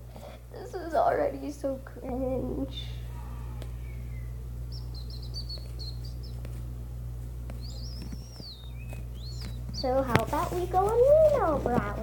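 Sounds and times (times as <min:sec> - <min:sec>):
low steady hum: 0:00.0 - 0:12.0
bird chirping: 0:02.8 - 0:06.8, 0:07.4 - 0:11.4.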